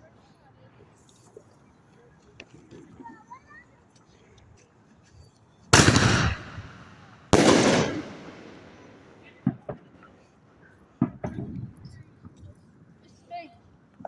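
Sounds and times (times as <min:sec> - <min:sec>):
faint fireworks pops: 0:05.7 - 0:12.6
fireworks loud bangs: 0:05.8 - 0:10.3.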